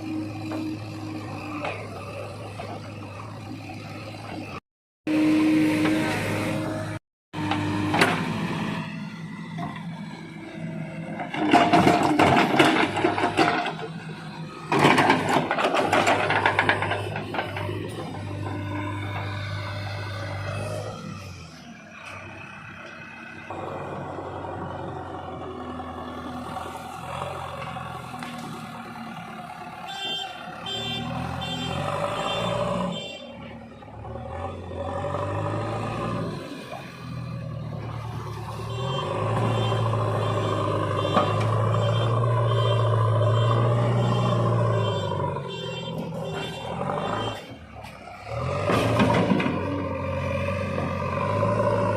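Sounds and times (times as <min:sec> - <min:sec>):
diesel engine revving: 0:00.0 - 0:51.9
diesel engine running: 0:36.8 - 0:51.9.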